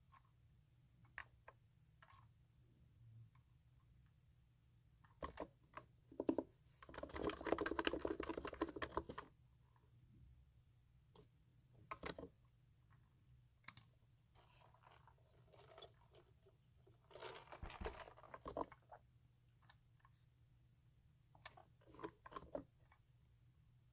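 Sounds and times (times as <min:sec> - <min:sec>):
computer keyboard typing: 0:06.1 - 0:09.3.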